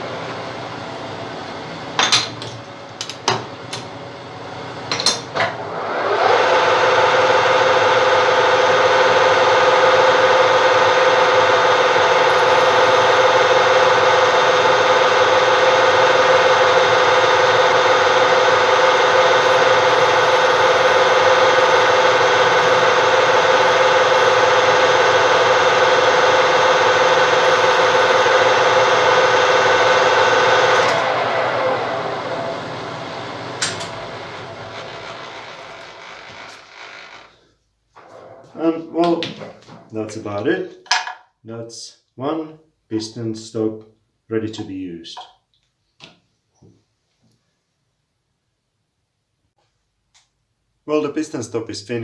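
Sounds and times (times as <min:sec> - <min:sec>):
lathe running steadily: 0:00.0 - 0:37.4.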